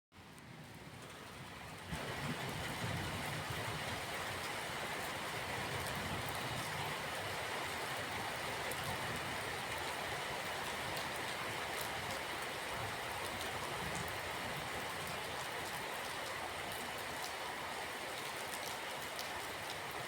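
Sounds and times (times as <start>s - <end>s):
steady rain hissing: 0.2s - 20.0s.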